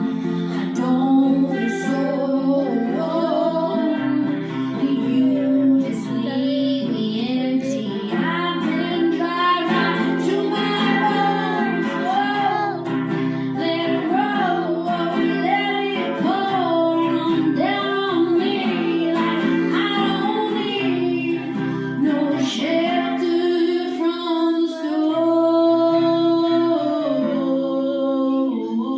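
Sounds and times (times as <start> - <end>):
acoustic guitar: 0.0 - 28.9
woman singing wordless melody: 0.0 - 28.9.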